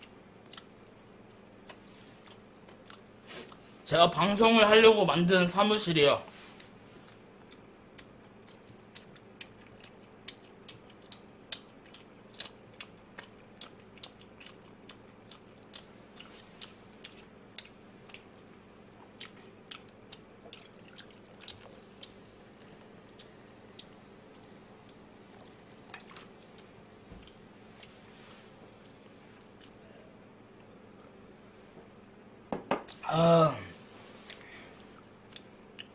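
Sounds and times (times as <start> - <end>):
crunchy chewing: 0.0 - 3.6, 6.5 - 29.9.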